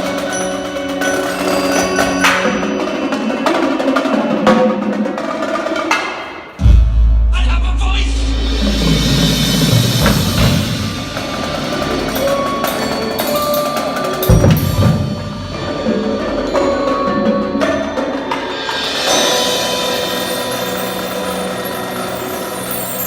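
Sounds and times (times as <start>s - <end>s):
mallet keyboards ringing: 0.0s - 4.0s, 11.1s - 23.0s
drum hits: 6.5s - 12.6s
heavy low booms: 6.6s - 11.4s.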